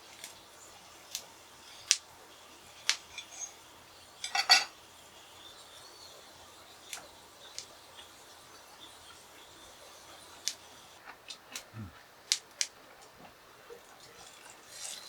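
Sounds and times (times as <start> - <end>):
utensils clinking against dishes: 2.6 - 4.9.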